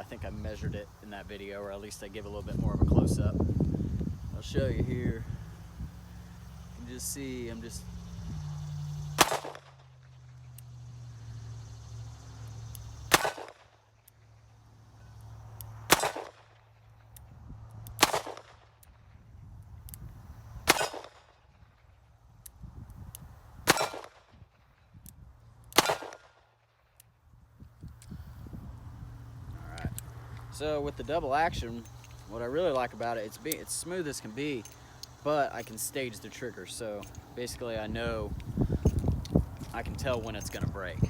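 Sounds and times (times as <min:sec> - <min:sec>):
wind rumble on microphone: 0:00.0 - 0:09.2, 0:17.2 - 0:18.1, 0:18.9 - 0:20.8, 0:21.5 - 0:25.5, 0:27.2 - 0:34.6, 0:36.8 - 0:41.0
revolver shots: 0:09.1 - 0:09.8.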